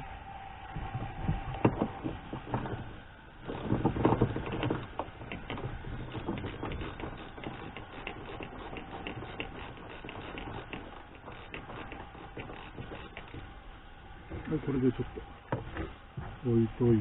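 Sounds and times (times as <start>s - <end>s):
light rapid clicks on car trim: 3.4s - 13.5s.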